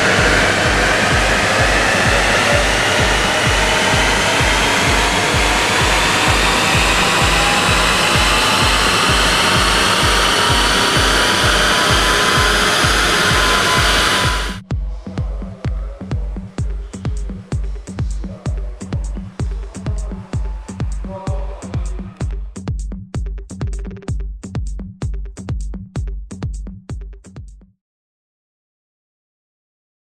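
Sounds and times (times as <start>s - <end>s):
diesel engine under full load: 0.0s - 14.6s
electronic music with steady beat: 0.0s - 27.6s.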